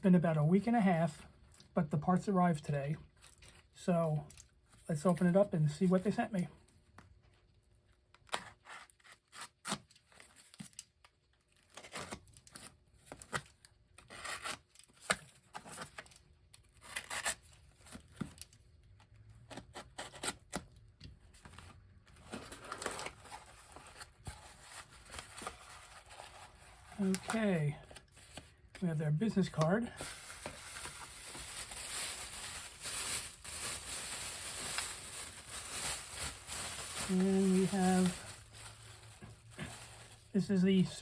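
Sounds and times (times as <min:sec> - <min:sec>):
packaging tearing and rustling: 0:08.2 - 0:18.6, 0:21.7 - 0:28.6, 0:29.5 - 0:40.3.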